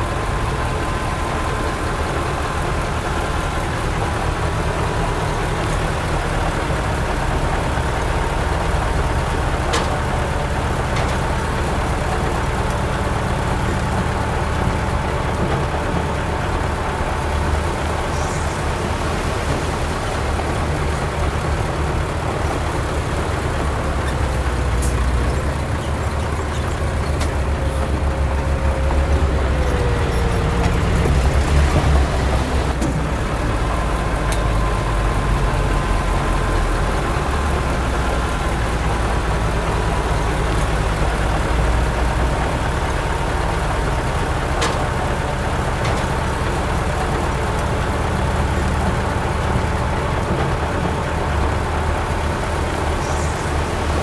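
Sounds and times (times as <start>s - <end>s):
heavy diesel engine rumbling: 0.0s - 54.0s.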